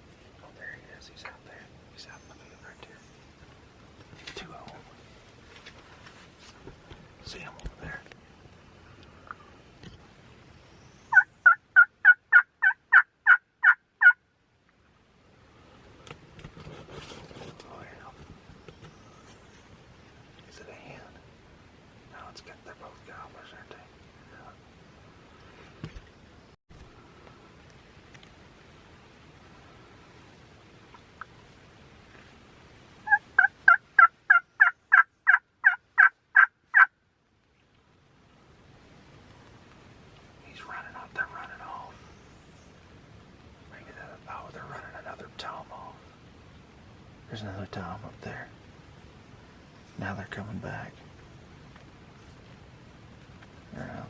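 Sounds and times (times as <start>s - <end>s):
turkey yelps: 11.1s - 14.2s, 33.1s - 36.9s.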